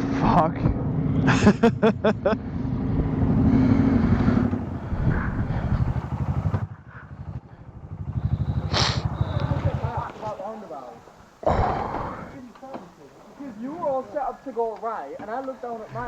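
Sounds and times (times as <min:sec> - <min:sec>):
motorcycle engine idling: 0:02.3 - 0:11.4
short hiss: 0:08.7 - 0:09.1.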